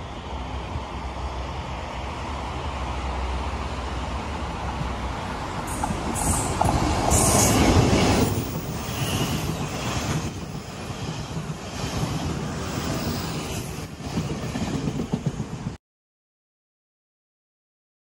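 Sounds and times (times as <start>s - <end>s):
passenger train passing: 0.0s - 15.8s
train wheels clattering on rails: 5.6s - 15.8s.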